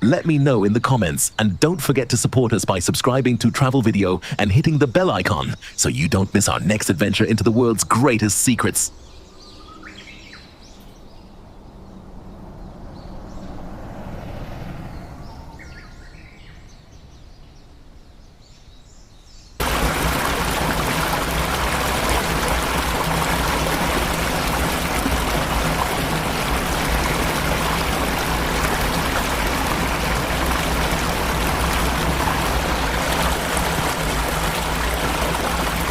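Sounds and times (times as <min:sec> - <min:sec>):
waterfall rushing: 0:19.6 - 0:35.9.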